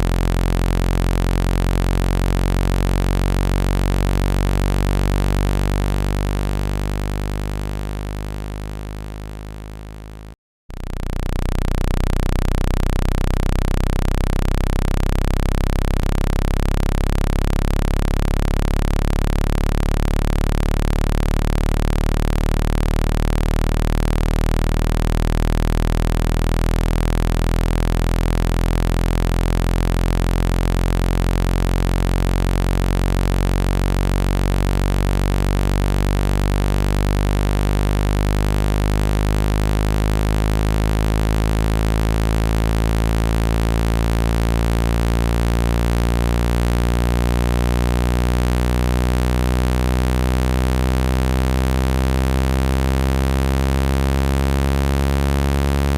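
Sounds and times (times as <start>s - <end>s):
low buzzy synthesized tone: 0.0s - 55.9s.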